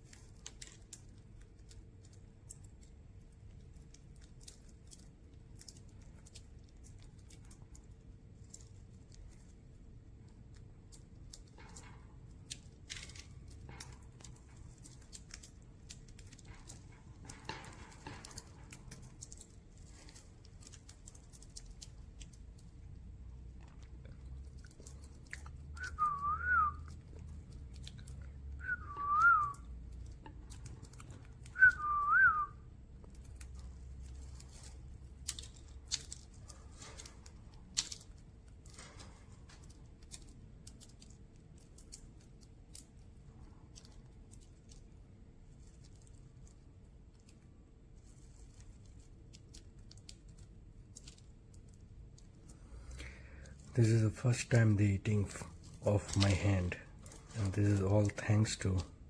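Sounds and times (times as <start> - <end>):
wavering whistles: 25.8 - 27.0, 28.6 - 29.7, 31.5 - 32.6.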